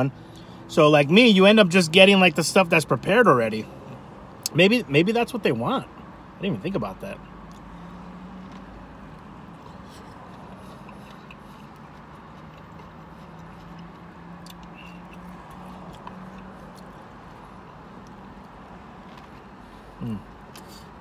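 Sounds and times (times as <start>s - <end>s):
faint chewing and mouth clicks: 7.4s - 21.0s.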